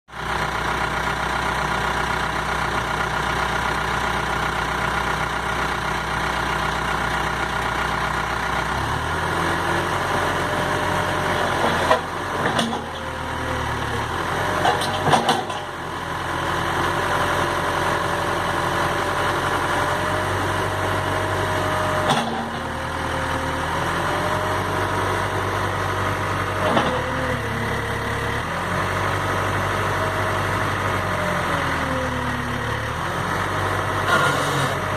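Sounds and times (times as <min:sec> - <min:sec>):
diesel engine running: 0:00.1 - 0:34.9
sharp knocks and clunks: 0:14.6 - 0:15.7.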